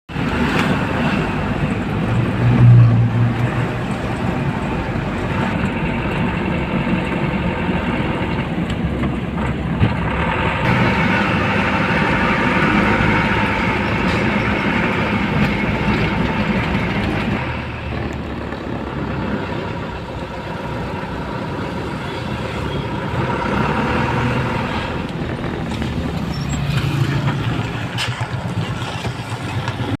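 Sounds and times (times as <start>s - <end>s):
road noise: 0.1s - 30.0s
truck engine running: 0.1s - 30.0s.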